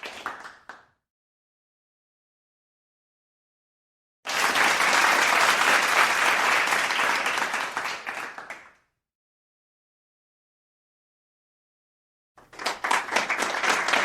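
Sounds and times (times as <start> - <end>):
crowd applauding: 0.0 - 0.8, 4.3 - 8.8, 12.4 - 14.0.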